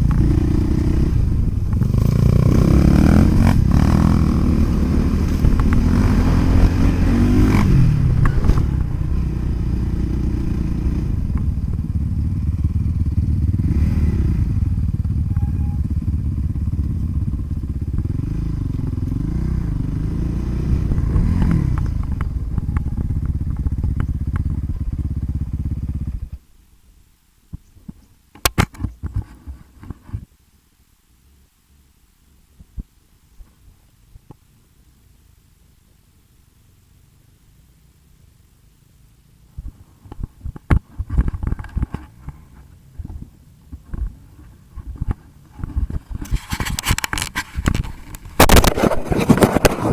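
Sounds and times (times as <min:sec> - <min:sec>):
dirt bike engines revving: 0:00.0 - 0:16.0, 0:48.0 - 0:49.9.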